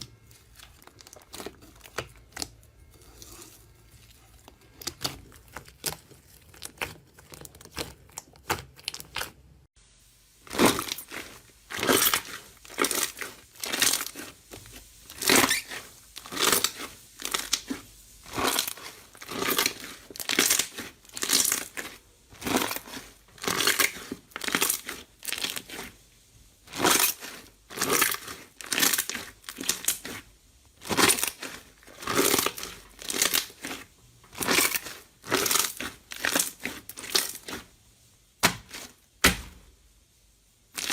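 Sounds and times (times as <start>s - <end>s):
crunchy material squeezed by hand: 10.5s - 26.0s.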